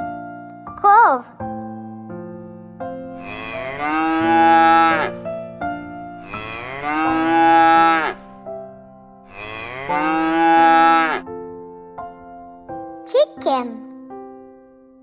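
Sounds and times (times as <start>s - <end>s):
soft background music: 0.0s - 15.0s
cow mooing: 3.2s - 5.2s, 6.2s - 8.3s, 9.3s - 11.2s.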